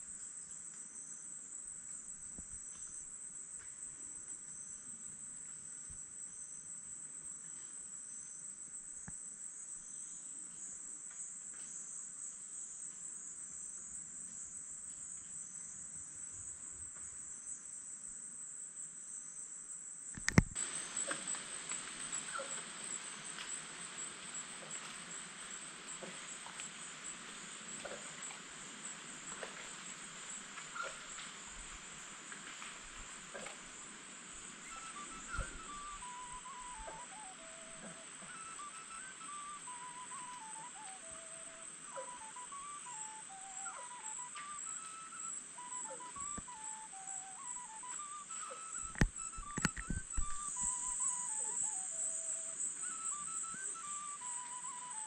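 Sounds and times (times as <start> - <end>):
insect chorus: 0.0 - 55.0
small ticks: 1.8 - 4.6, 9.0 - 9.2, 20.1 - 39.0, 43.9 - 46.8, 47.5 - 55.0
sharp click: 20.2 - 20.6.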